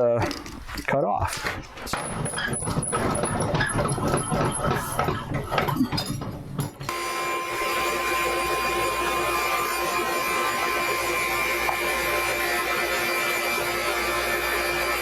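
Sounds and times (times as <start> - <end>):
electric power saw cutting: 6.9 - 15.0.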